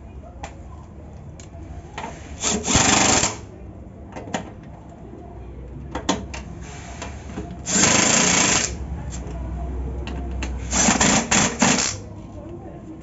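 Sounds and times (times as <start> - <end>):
power drill running: 7.7 - 8.8, 10.7 - 12.0.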